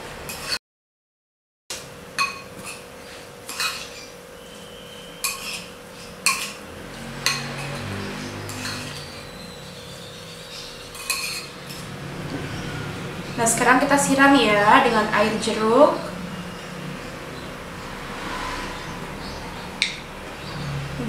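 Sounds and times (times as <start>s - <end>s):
metal spoon clinking on ceramic bowl: 5.2s - 6.6s, 8.5s - 9.1s, 10.9s - 11.9s.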